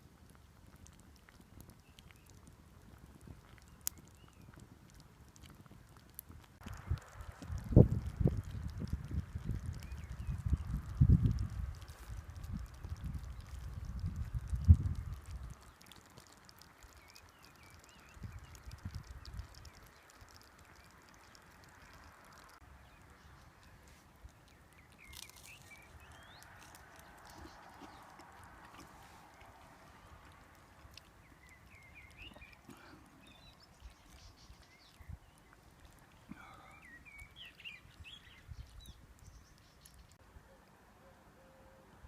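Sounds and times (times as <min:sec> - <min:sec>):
faint bird chirps: 0:31.2 - 0:42.0.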